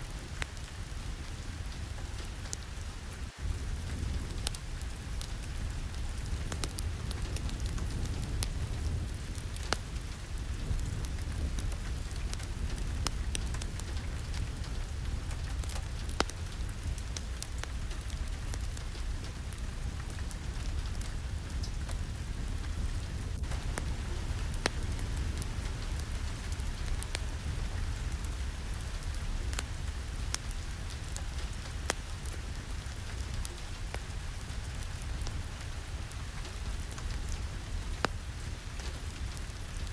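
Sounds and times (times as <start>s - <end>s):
heavy rain: 0.0s - 39.9s
low rumble: 3.4s - 30.9s.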